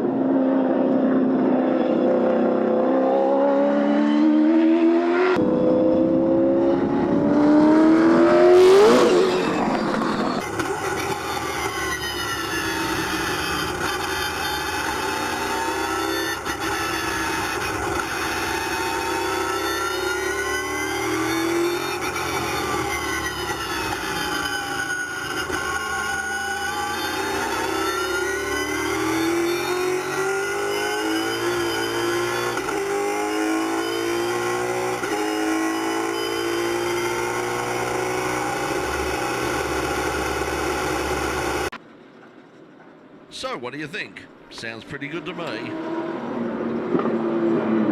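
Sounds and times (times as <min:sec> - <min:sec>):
race car engine: 0:00.0 - 0:41.8, 0:43.4 - 0:47.9
gear upshifts: 0:05.4 - 0:34.2.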